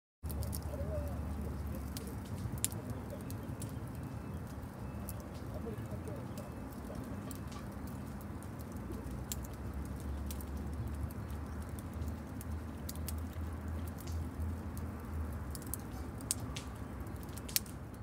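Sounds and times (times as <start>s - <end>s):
campfire crackling and popping: 0.2s - 18.0s.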